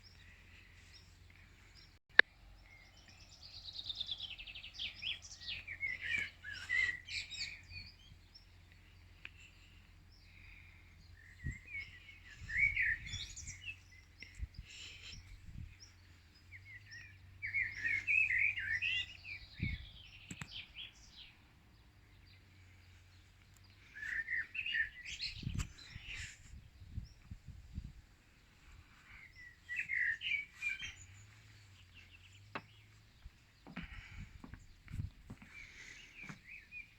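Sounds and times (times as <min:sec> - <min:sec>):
songbird chirping: 0:00.0 - 0:36.9
soft low thumps: 0:31.3 - 0:35.6.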